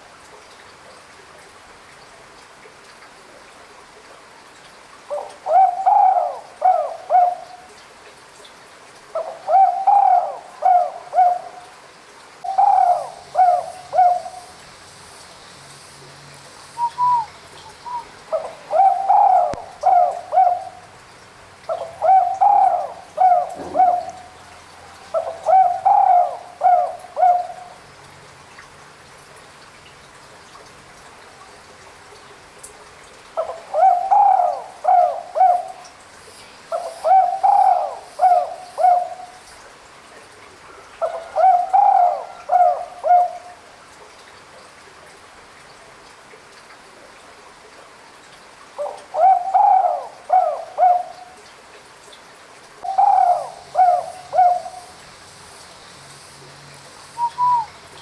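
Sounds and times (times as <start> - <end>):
dove cooing: 5.1 - 7.6, 9.2 - 11.7, 12.4 - 14.6, 16.8 - 20.9, 21.7 - 27.8, 33.4 - 35.9, 36.7 - 39.4, 41.0 - 43.5, 48.8 - 51.4, 52.8 - 55.0, 57.2 - 58.0.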